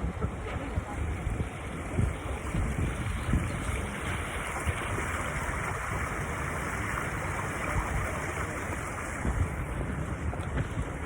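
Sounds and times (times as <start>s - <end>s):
running water rushing: 0.0s - 11.0s
wind rumble on microphone: 0.0s - 11.0s.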